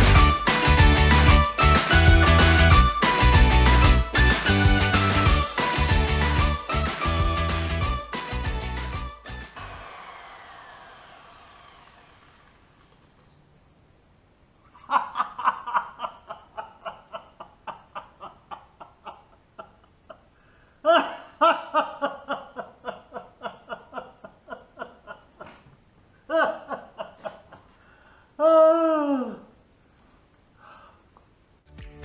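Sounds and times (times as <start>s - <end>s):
man laughing: 14.7s - 27.7s.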